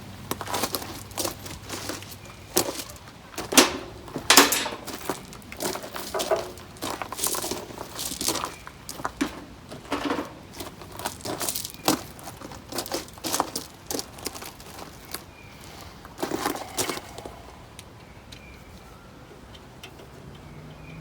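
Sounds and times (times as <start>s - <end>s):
tools and metal parts handled: 0.7s - 15.1s.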